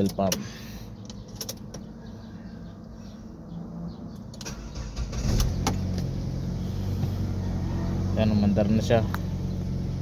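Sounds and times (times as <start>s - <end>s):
car engine starting and running: 3.9s - 10.0s.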